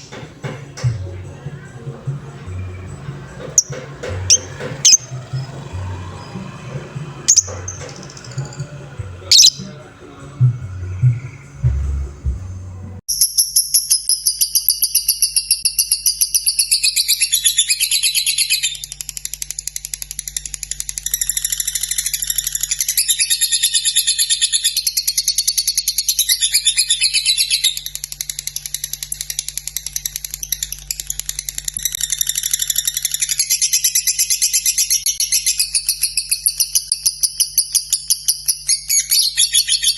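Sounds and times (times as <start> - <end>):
lovebird chattering trill: 3.6 - 5.5, 7.3 - 9.8.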